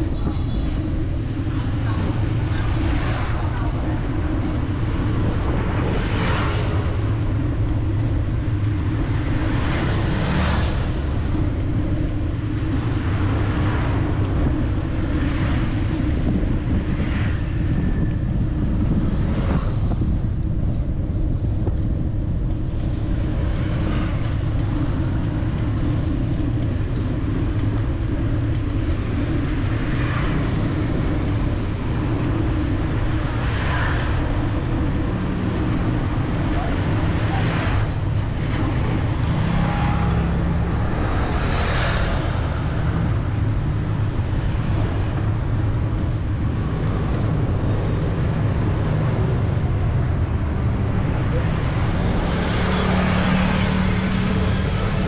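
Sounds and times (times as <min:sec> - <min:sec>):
traffic rumble and road noise: 0:00.0 - 0:55.0
vehicles passing close by: 0:00.0 - 0:55.0.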